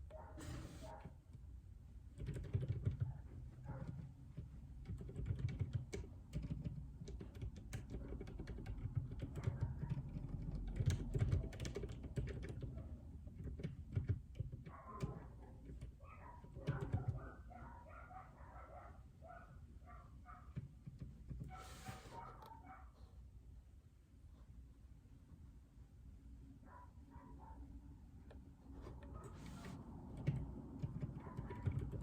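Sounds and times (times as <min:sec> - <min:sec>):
typing on mechanical keyboard: 0:02.1 - 0:17.3, 0:29.4 - 0:32.0.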